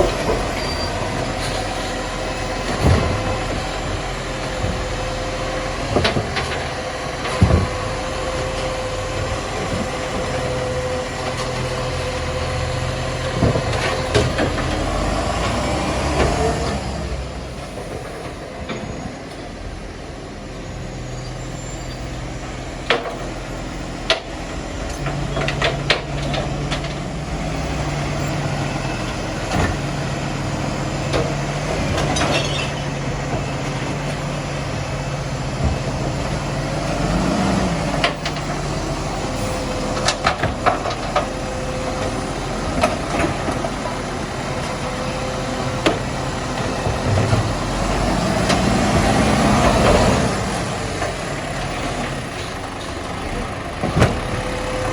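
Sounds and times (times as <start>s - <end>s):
garbage truck engine idling: 0.0s - 54.9s
sharp knocks and clanks: 2.5s - 5.1s, 5.8s - 8.0s, 24.0s - 28.1s, 31.0s - 34.2s, 39.8s - 41.4s.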